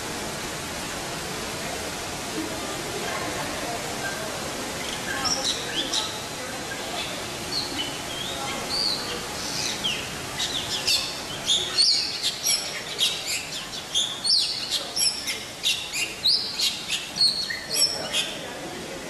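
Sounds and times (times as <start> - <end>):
birds chirping: 4.8 - 18.4.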